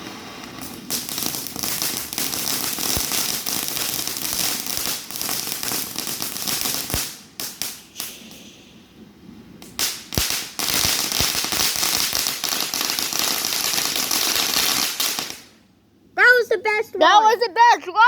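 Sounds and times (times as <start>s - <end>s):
sharp firework bangs: 0.0s - 9.0s, 9.6s - 15.6s
fireworks crackling and popping: 0.0s - 15.6s.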